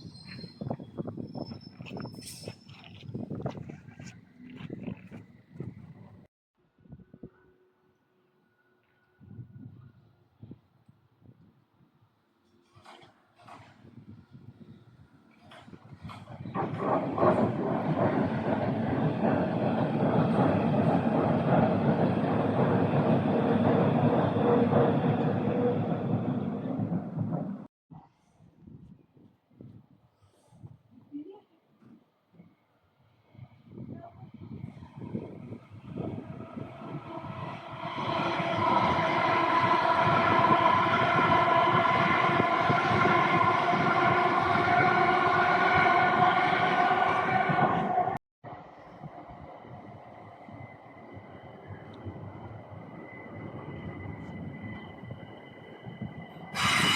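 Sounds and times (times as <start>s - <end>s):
train wheels rushing on rails: 15.3s - 27.7s, 49.4s - 56.9s.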